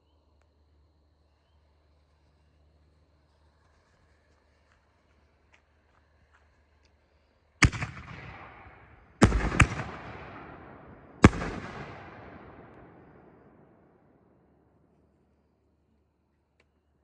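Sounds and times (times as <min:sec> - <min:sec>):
firework shells bursting: 0:07.6 - 0:13.8.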